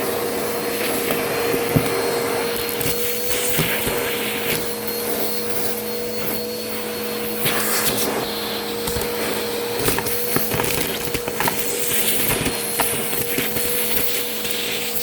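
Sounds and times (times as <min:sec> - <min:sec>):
vacuum cleaner running: 0:00.0 - 0:15.0
debris clicking in vacuum: 0:08.8 - 0:15.0.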